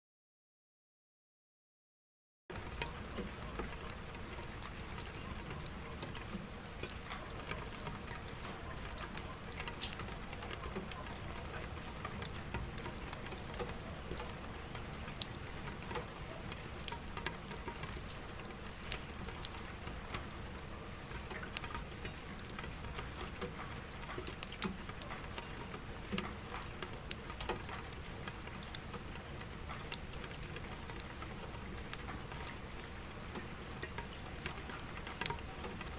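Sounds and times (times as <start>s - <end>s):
single raindrops ticking: 2.5s - 35.9s
steady rainfall: 2.5s - 35.9s.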